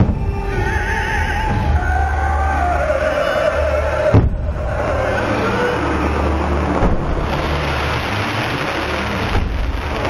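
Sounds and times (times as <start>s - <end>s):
fireworks bursting: 4.1s - 10.0s.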